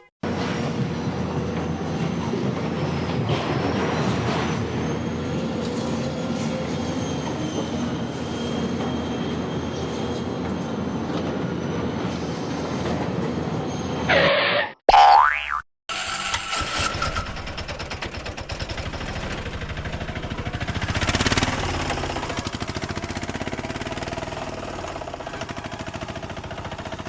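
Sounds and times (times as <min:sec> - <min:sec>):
faint high squealing: 0:13.6 - 0:14.8
vehicle engine rumble: 0:16.0 - 0:27.0.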